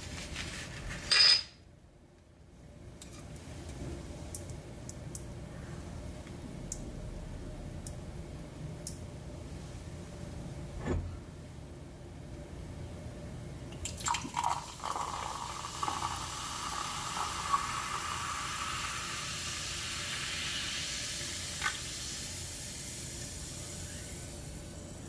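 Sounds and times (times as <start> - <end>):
drink pouring into a glass: 13.8 - 21.9.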